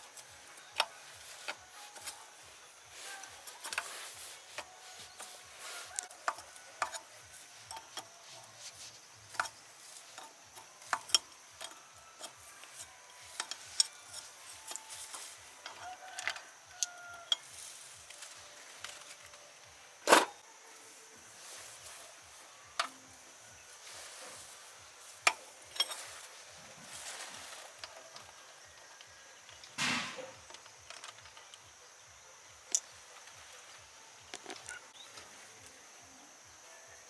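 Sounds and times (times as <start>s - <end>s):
loud knock: 29.8s - 30.4s.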